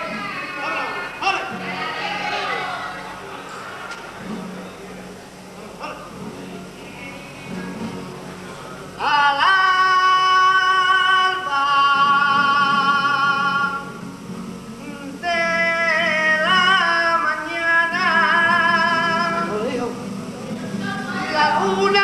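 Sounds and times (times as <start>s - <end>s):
choir singing with vibrato: 0.0s - 3.6s, 20.7s - 22.0s.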